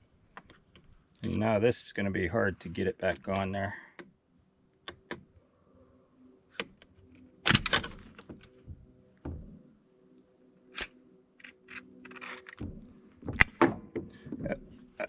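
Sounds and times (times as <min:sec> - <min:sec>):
grease gun parts clicking and clattering: 0:07.5 - 0:08.5, 0:10.8 - 0:14.4.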